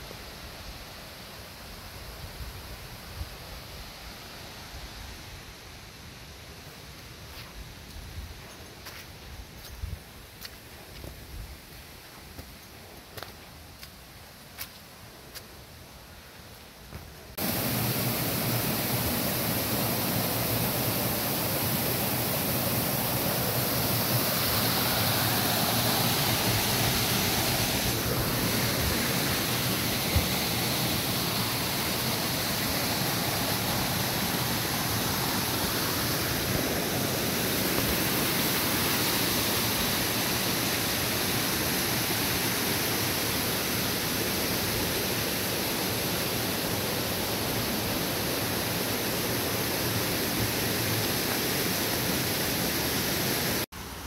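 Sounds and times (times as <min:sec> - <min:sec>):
waterfall rushing: 0:17.4 - 0:53.7.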